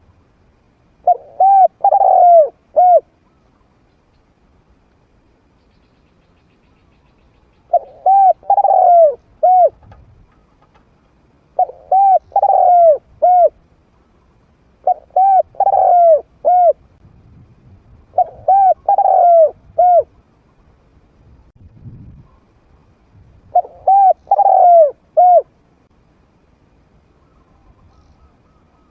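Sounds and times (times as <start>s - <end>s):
dove cooing: 1.0s - 3.4s, 7.7s - 10.8s, 11.5s - 13.6s, 14.8s - 16.8s, 18.1s - 20.1s, 23.5s - 25.5s.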